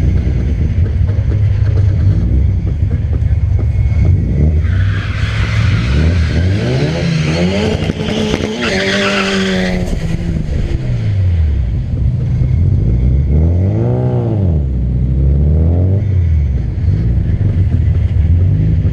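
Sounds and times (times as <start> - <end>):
car engine revving: 0.0 - 18.9
tires squealing: 1.0 - 11.2.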